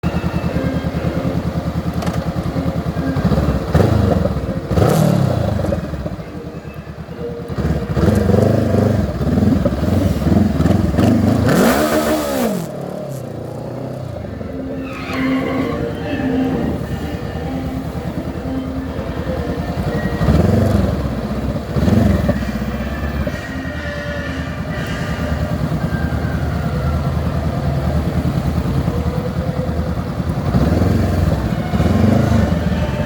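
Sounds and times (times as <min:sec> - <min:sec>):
motorcycle engines revving: 0:00.0 - 0:33.0.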